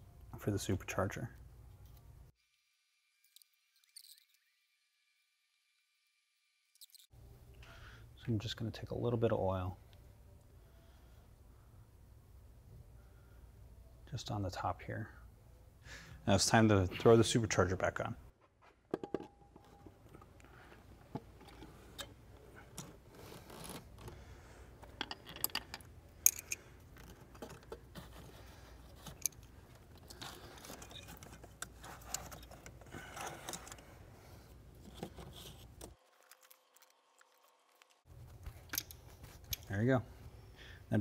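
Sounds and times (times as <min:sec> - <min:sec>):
metal tools clinking and scraping: 0:24.8 - 0:28.2, 0:28.8 - 0:33.9.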